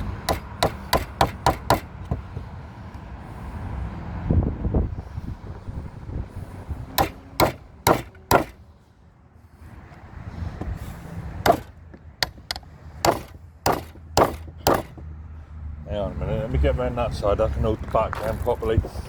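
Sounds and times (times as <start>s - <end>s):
hand strikes on timber: 0.0s - 2.4s, 7.0s - 8.6s, 11.4s - 15.1s.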